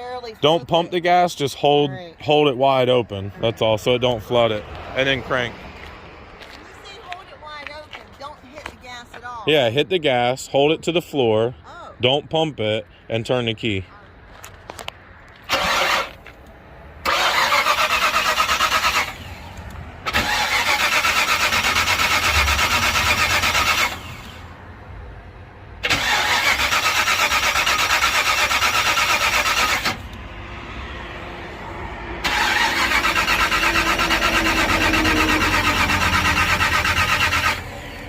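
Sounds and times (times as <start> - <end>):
starter cranking engine: 15.5 - 16.2, 17.0 - 19.3, 20.0 - 24.5, 25.8 - 30.2, 32.2 - 38.0.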